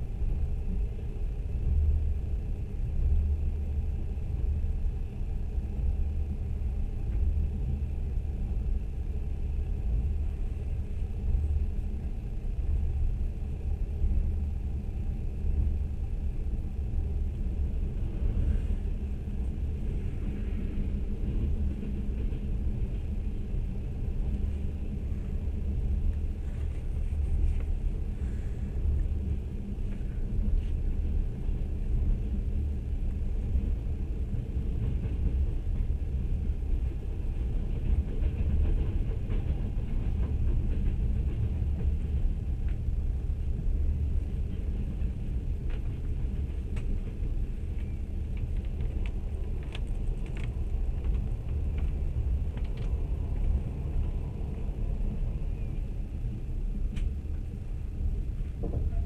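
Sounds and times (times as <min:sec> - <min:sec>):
train wheels rumbling on rails: 0:00.0 - 0:59.0
faint ticks and clicks: 0:47.7 - 0:53.6.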